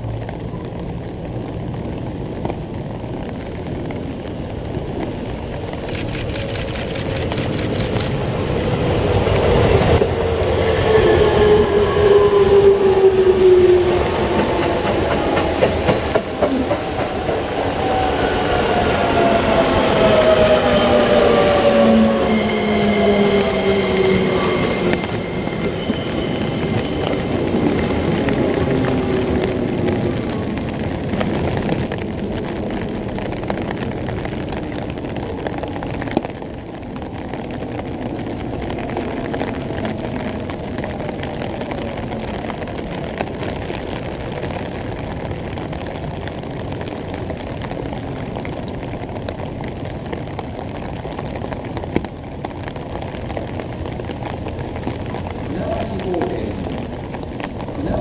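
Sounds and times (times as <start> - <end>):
electric train whine: 7.6 - 33.6.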